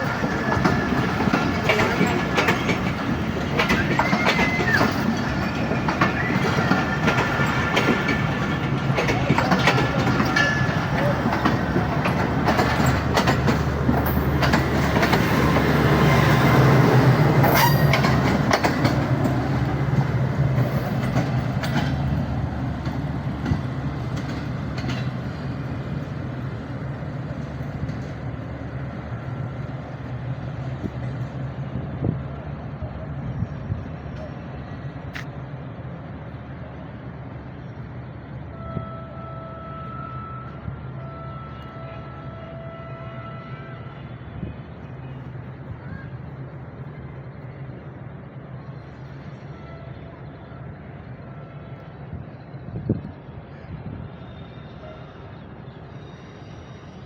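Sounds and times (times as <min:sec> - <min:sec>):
train wheels clicking over rail joints: 0:00.0 - 0:28.5.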